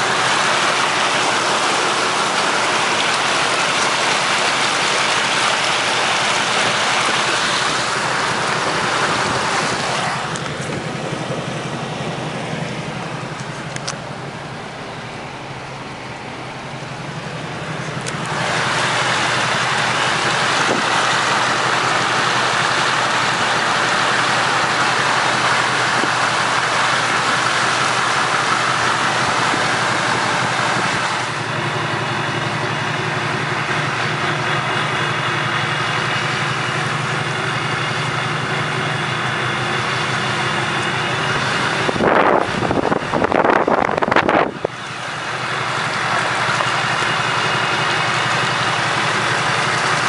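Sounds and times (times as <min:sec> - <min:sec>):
diesel pickup engine running: 0:00.0 - 0:50.0.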